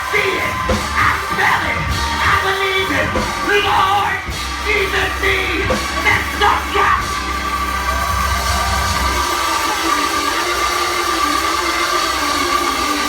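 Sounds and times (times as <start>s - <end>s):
live church praise music: 0.0s - 13.0s
people singing and shouting: 0.0s - 13.0s.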